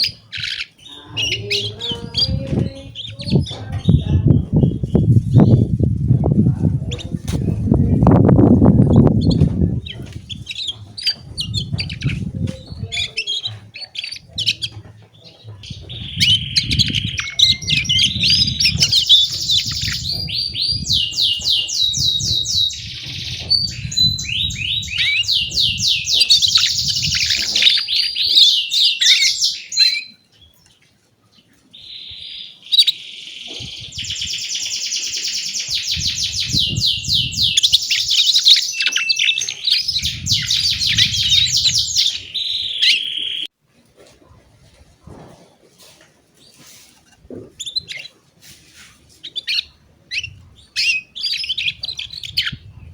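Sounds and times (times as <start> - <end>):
canary singing trills: 0.0 - 43.5, 47.5 - 52.9.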